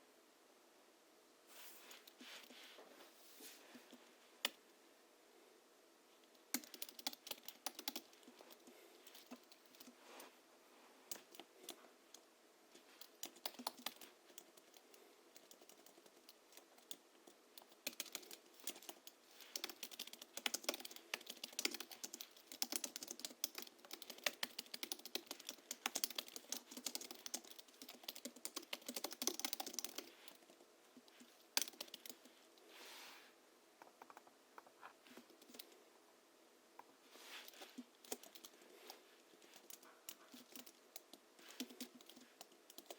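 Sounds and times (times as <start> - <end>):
keyboard typing: 6.4 - 10.0, 13.0 - 30.6, 31.2 - 32.3, 35.2 - 35.8, 37.5 - 38.6, 39.5 - 42.9.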